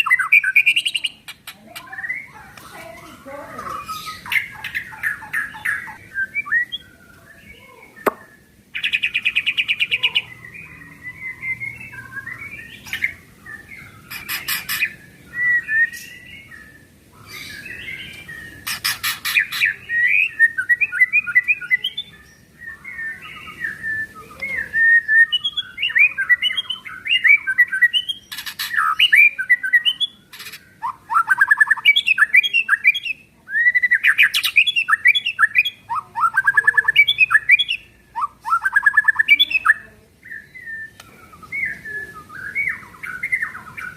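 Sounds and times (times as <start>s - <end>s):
songbird whistling and rattling: 11.3s - 16.3s, 17.2s - 21.9s, 22.7s - 33.0s.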